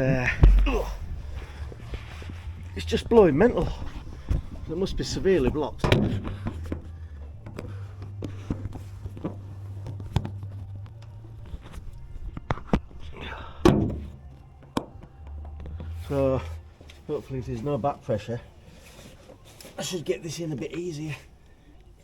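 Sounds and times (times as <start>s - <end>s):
radio music: 0.3s - 13.6s.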